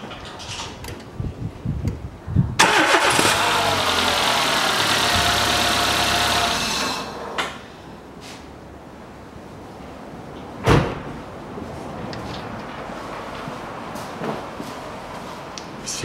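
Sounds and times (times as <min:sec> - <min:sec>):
car engine starting and running: 0:02.6 - 0:07.8.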